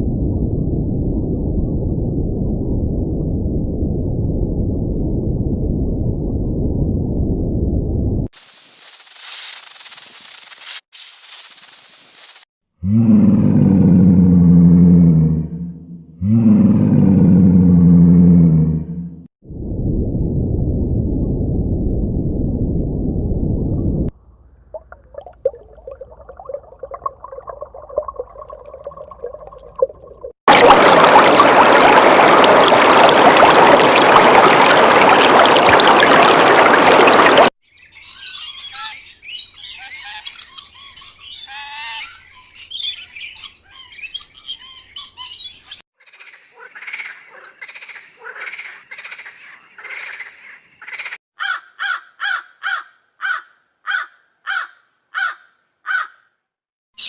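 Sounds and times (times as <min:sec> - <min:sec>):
birds chirping and squawking: 0:37.7 - 0:56.2.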